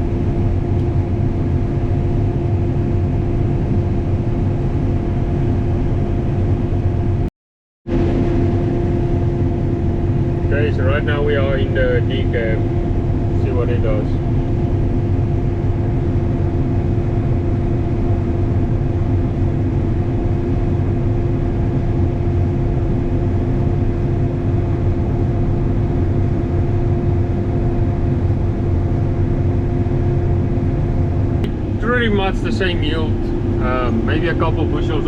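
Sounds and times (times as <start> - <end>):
combine harvester droning: 7.9 - 35.0.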